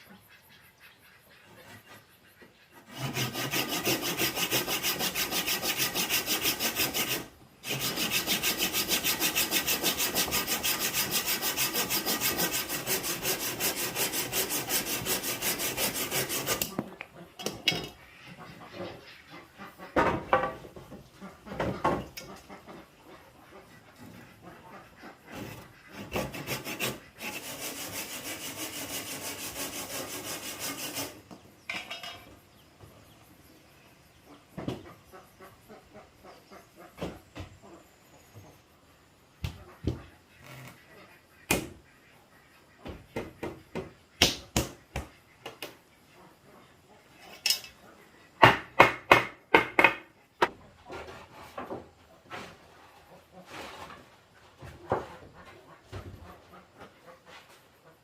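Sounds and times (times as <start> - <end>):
saw rasping through wood: 2.9 - 16.8, 25.4 - 31.2
sharp blows on wood: 48.4 - 50.5.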